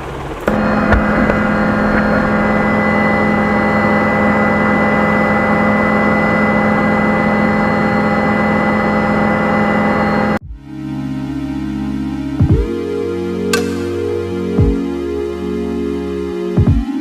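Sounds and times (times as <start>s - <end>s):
helicopter engine and rotor drone: 0.0s - 10.4s.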